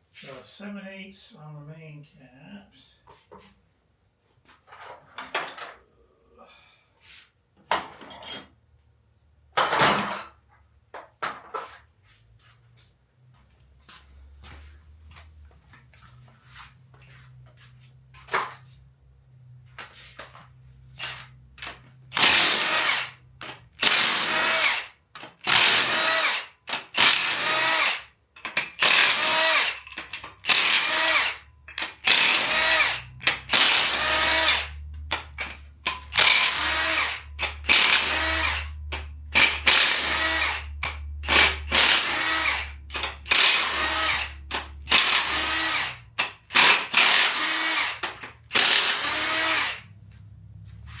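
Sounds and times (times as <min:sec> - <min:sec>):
metal tools clicking and knocking: 0:04.7 - 0:05.8, 0:07.7 - 0:08.6, 0:28.4 - 0:28.9, 0:29.7 - 0:31.0, 0:31.6 - 0:36.6, 0:42.8 - 0:45.4
power wrench bursts: 0:21.0 - 0:49.9.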